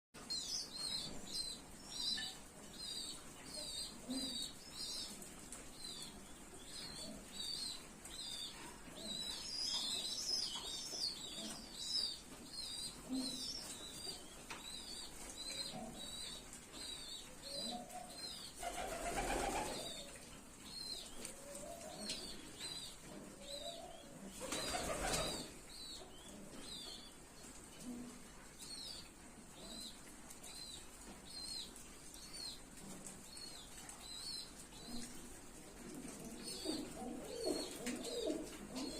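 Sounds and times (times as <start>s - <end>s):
wings flapping: 18.6s - 19.8s, 24.4s - 25.5s
pigeon cooing: 35.8s - 38.9s.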